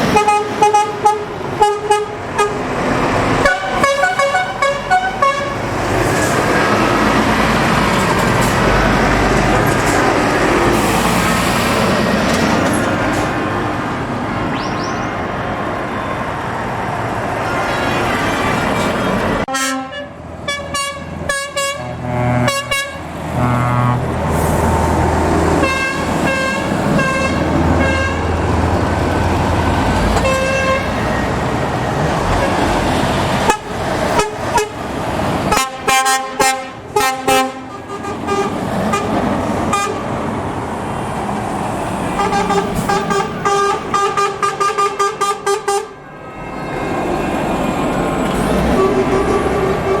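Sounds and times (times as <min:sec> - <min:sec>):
truck engines rumbling: 0:00.0 - 0:50.0
long horn blast: 0:00.1 - 0:02.6, 0:03.4 - 0:05.6, 0:19.5 - 0:24.7, 0:25.6 - 0:28.4, 0:30.2 - 0:31.0, 0:33.4 - 0:34.8, 0:35.5 - 0:40.0, 0:42.2 - 0:47.3, 0:48.3 - 0:50.0
short truck horn toots: 0:19.5 - 0:24.1, 0:48.4 - 0:50.0.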